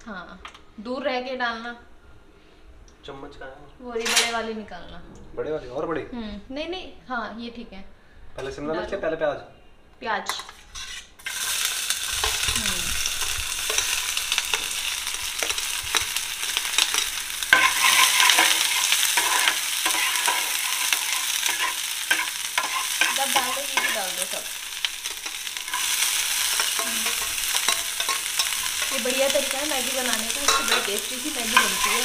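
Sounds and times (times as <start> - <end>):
steel spoon scraping a pan: 10.3 - 32.0
vegetables sizzling in a pan: 10.5 - 32.0.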